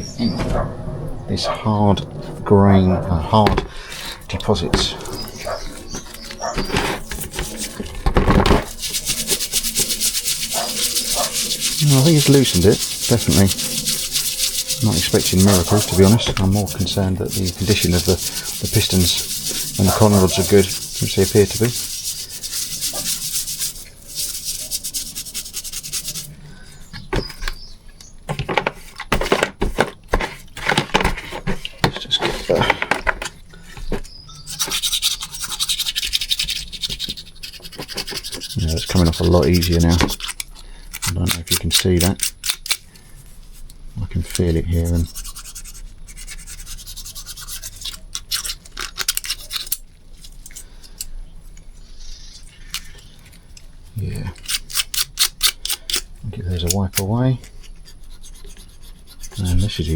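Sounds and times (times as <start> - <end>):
scrubbing engine pistons: 3.3 - 27.0, 33.8 - 42.5.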